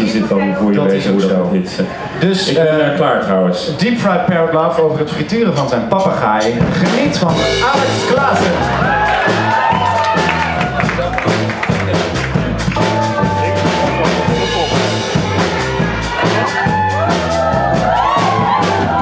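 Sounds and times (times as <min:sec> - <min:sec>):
drum kit beat: 0:06.6 - 0:19.0
bass guitar: 0:07.2 - 0:19.0.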